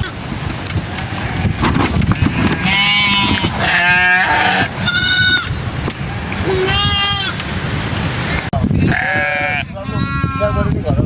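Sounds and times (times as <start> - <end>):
sheep bleating: 2.2 - 5.6, 6.4 - 7.4, 8.2 - 10.8.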